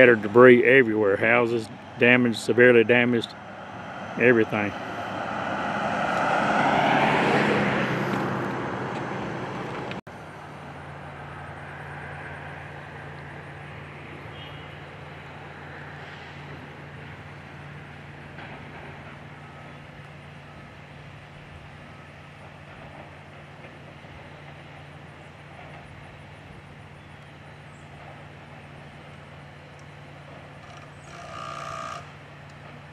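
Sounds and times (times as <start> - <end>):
motor vehicle passing: 0.0 - 23.1
low engine hum: 0.0 - 32.9.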